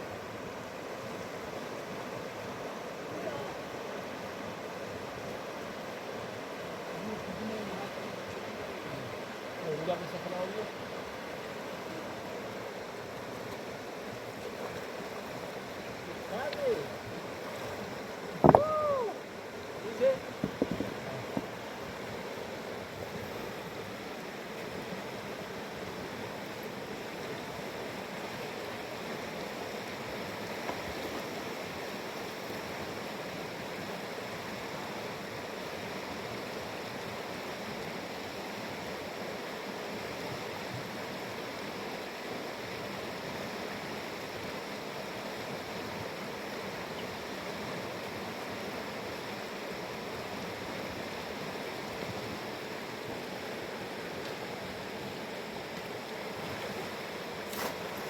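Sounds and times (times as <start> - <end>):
river rushing over rapids: 0.0 - 58.0.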